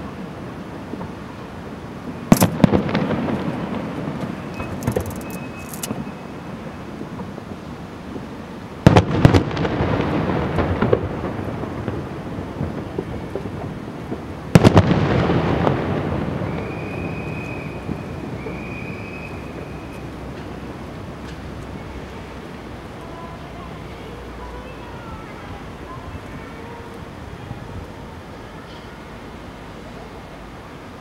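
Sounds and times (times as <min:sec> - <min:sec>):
firework shells bursting: 0:02.2 - 0:06.3
rumbling echo: 0:08.9 - 0:23.0.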